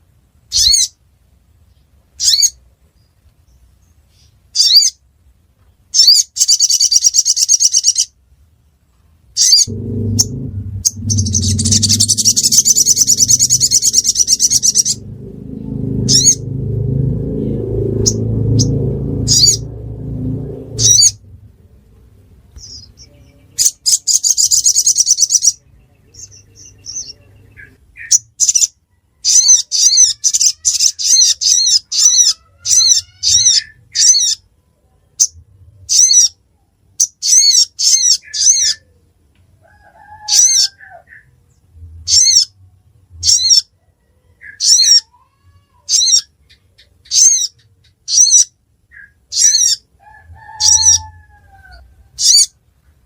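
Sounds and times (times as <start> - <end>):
fainter lower bird calls: 9.4 - 16.5.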